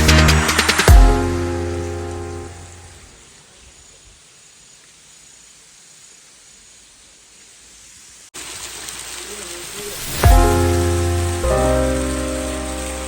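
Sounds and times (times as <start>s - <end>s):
waterfall rushing: 0.0s - 4.2s, 8.4s - 13.0s.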